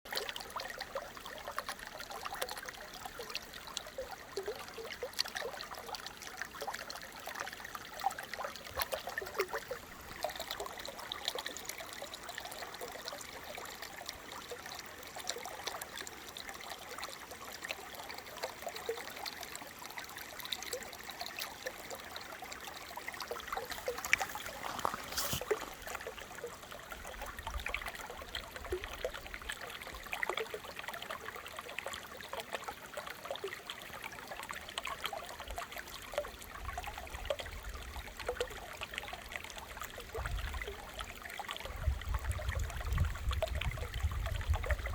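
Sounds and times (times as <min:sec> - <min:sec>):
brook trickling and babbling: 0:00.1 - 0:44.9.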